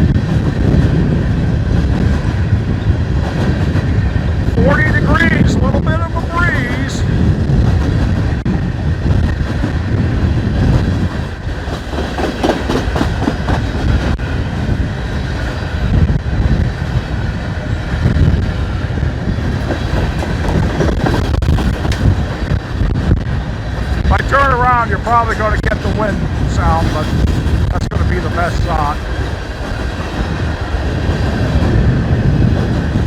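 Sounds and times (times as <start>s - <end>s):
train wheels rumbling on rail: 0.0s - 33.0s
wheels clicking over rail joints: 10.6s - 14.2s.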